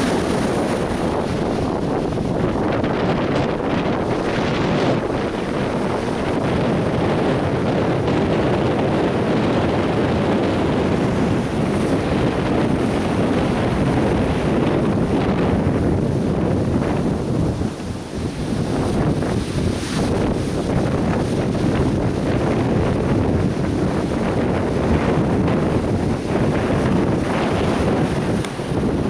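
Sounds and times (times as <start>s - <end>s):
surf breaking on beach: 0.0s - 29.0s
wind buffeting microphone: 0.0s - 29.0s.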